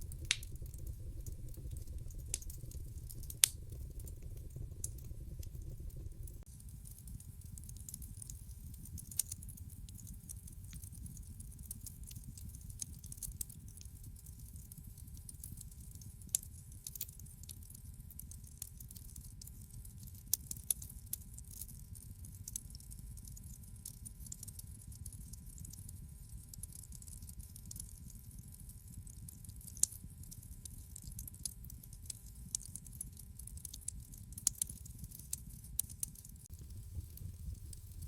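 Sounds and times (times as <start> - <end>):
wood fire crackling: 0.0 - 19.2, 24.3 - 24.5, 29.2 - 30.4, 31.0 - 38.0.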